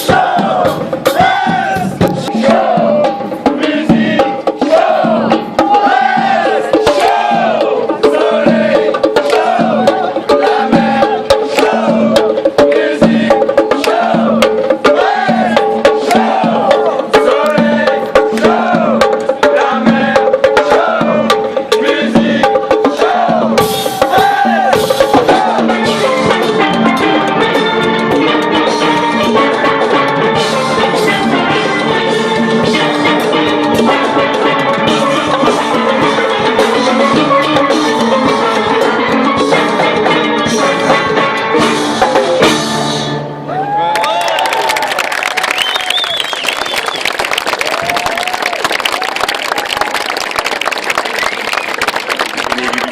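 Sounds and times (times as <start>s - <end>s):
steady percussion beat: 0.0s - 43.2s
steel drums playing melody: 24.8s - 43.4s.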